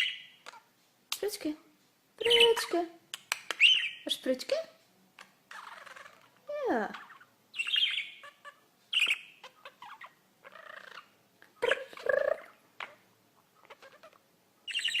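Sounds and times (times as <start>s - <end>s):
pet bird chirping and squawking: 0.0s - 0.8s, 2.2s - 2.9s, 3.5s - 4.3s, 5.2s - 15.0s.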